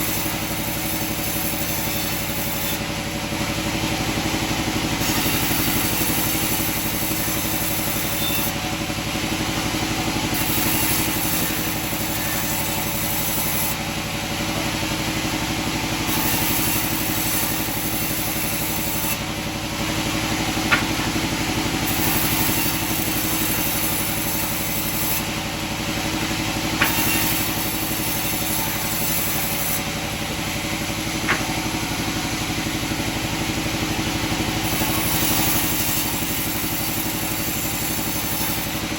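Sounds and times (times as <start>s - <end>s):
sawmill machinery humming: 0.0s - 38.9s
sharp knocks: 20.7s - 21.1s, 31.2s - 31.6s.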